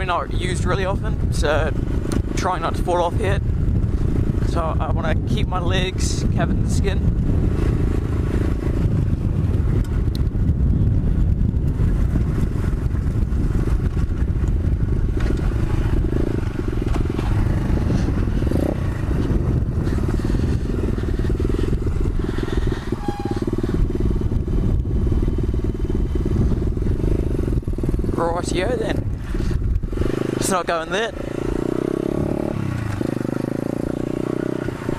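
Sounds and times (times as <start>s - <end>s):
motorbike engine running: 0.0s - 34.9s.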